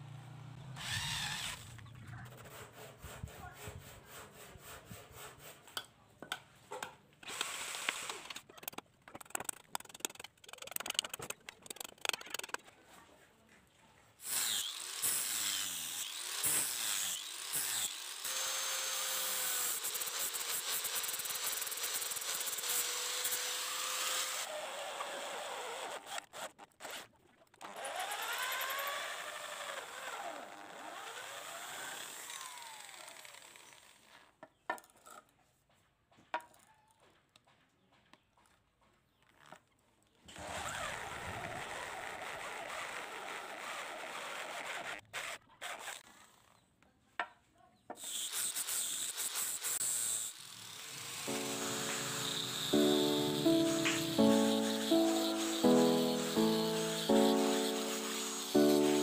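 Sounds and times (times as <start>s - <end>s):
power tool grinding metal: 14.2s - 26.2s, 48.0s - 59.0s.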